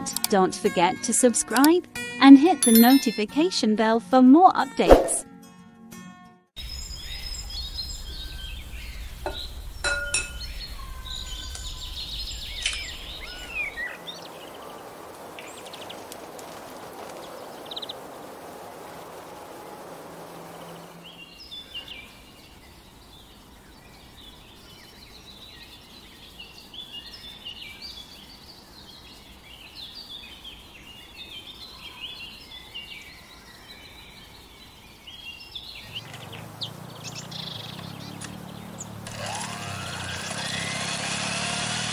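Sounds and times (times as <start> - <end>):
high bird chirps: 2.6 - 3.2, 35.8 - 39.0.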